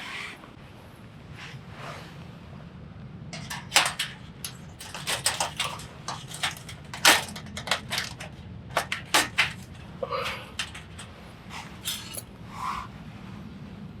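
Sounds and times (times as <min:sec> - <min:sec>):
steady low hum: 0:02.4 - 0:14.0
hard objects clicking and knocking: 0:03.4 - 0:12.2.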